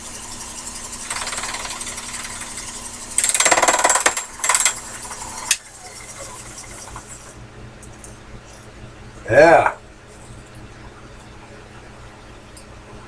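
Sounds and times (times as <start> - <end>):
lathe running: 0.0 - 7.4.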